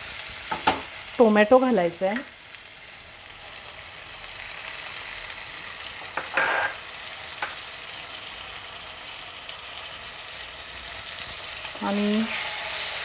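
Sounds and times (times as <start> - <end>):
masala sizzling in oil: 0.0 - 13.0.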